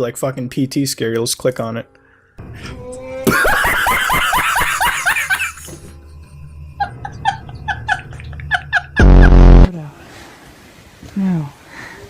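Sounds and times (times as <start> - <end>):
high-pitched laugh: 3.2 - 5.7, 6.8 - 9.5.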